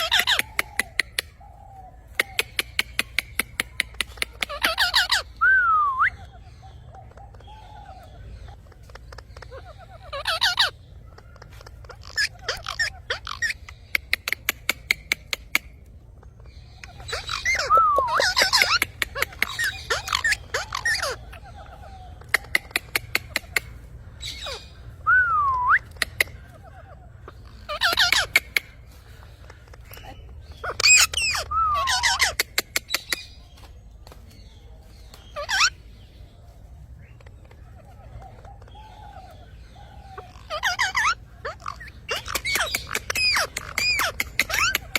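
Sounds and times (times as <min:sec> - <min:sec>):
parrot squawking: 0:00.0 - 0:33.4, 0:35.2 - 0:36.0, 0:37.0 - 0:44.9
lovebirds chirping: 0:00.0 - 0:44.9
sharp clicks: 0:02.1 - 0:04.7.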